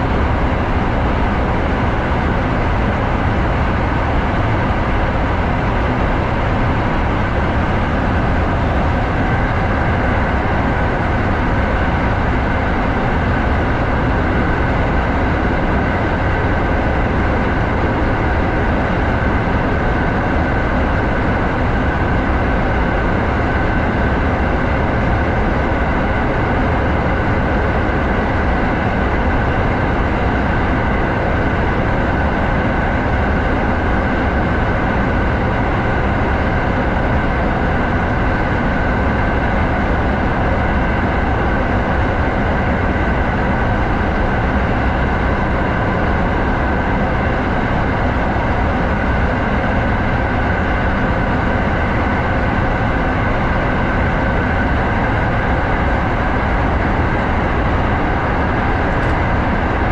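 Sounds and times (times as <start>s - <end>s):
faint steady whine: 0.0s - 59.9s.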